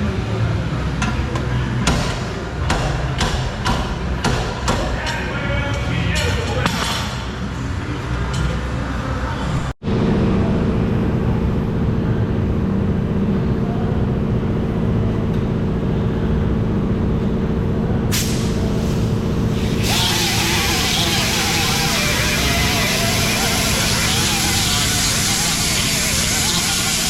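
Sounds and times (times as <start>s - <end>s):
air hissing: 18.1s - 27.0s
motor humming: 19.5s - 27.0s.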